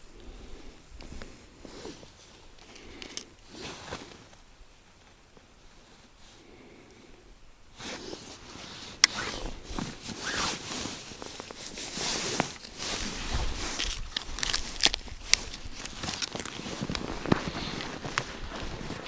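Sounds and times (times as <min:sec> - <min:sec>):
rustling and scraping: 0:00.0 - 0:06.5, 0:07.8 - 0:19.0.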